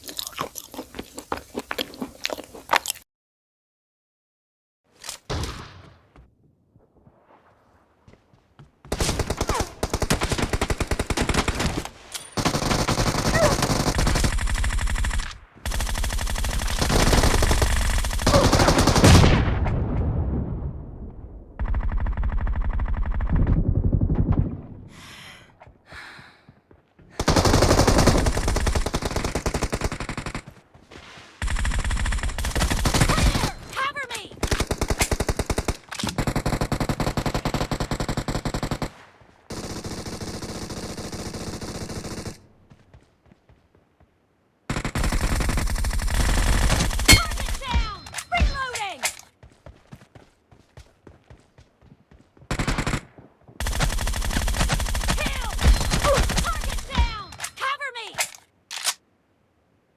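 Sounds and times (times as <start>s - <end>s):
rapid automatic gunfire: 8.9s - 11.8s, 12.4s - 19.3s, 27.2s - 30.4s, 31.4s - 33.4s, 34.5s - 38.9s, 39.5s - 42.4s, 44.7s - 47.6s, 52.5s - 56.9s.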